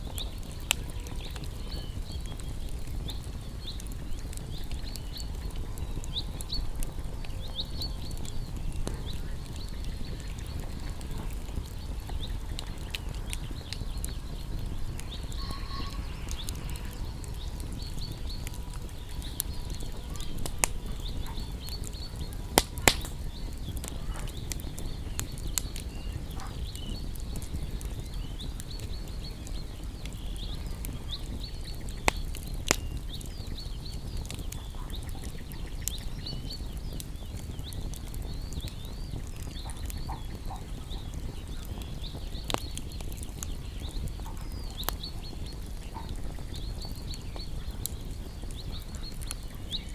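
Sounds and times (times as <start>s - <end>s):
loud pops from fire: 0.0s - 49.9s
small birds chirping: 0.0s - 49.9s
wood fire crackling: 0.0s - 49.9s
steady low rumble: 1.5s - 34.6s.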